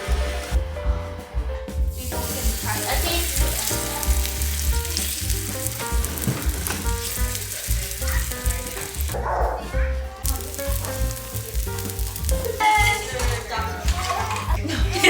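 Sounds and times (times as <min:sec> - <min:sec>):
music with bass beat: 0:00.0 - 0:15.0
pancakes sizzling in oil: 0:01.9 - 0:09.2, 0:10.2 - 0:14.6.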